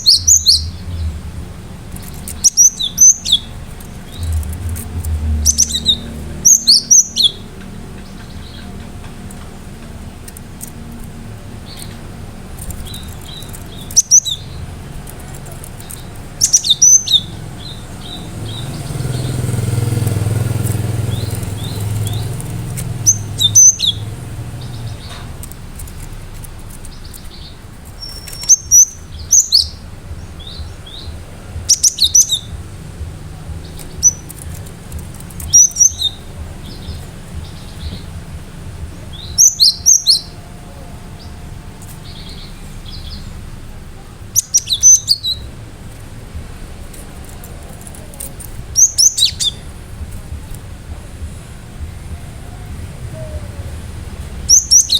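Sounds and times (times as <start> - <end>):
bird singing sharp high notes: 0.0 - 1.3, 1.9 - 26.1, 26.8 - 43.5
low rumble: 0.0 - 44.3.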